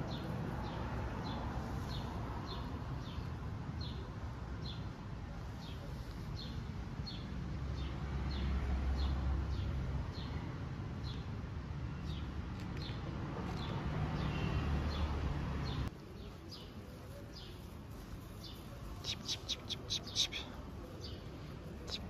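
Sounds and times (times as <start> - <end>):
small bird chirping: 18.4 - 22.0.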